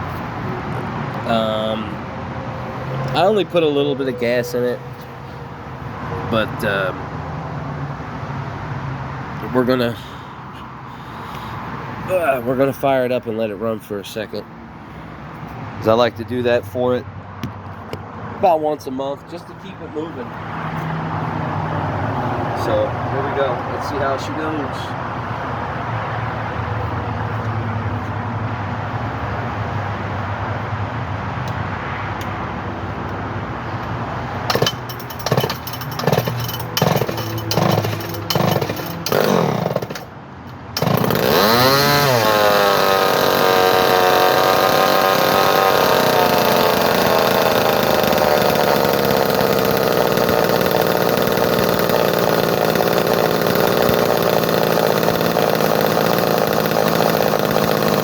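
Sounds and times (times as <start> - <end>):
chainsaw engine running: 34.5 - 40.1, 40.8 - 58.0
chainsaw starter cord pulls: 34.5 - 40.1, 40.8 - 58.0.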